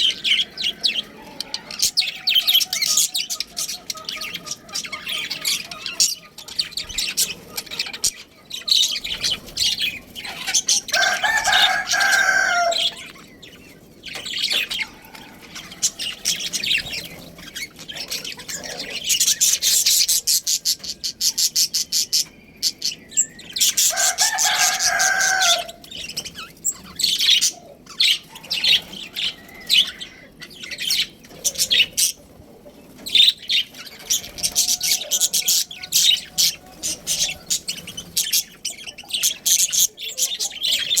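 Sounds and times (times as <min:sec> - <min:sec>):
budgerigars chattering: 0:00.0 - 0:41.0
rooster crowing: 0:00.2 - 0:03.0, 0:10.6 - 0:13.2, 0:14.6 - 0:17.0, 0:23.2 - 0:26.0, 0:28.2 - 0:30.4, 0:33.9 - 0:37.4.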